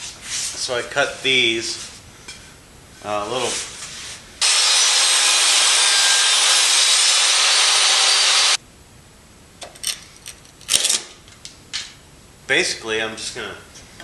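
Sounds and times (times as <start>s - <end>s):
power saw cutting wood: 4.4s - 8.6s.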